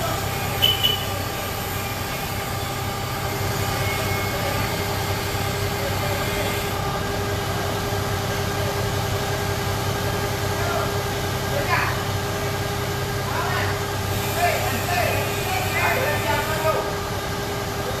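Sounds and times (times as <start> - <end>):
high-pitched whine: 0.0 - 5.4
engine humming: 0.0 - 18.0.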